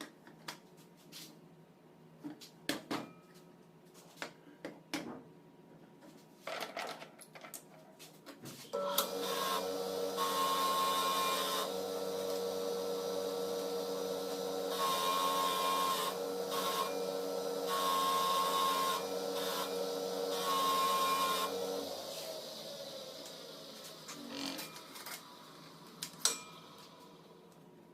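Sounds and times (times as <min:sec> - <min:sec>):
electric workshop tool humming: 0:08.8 - 0:27.4.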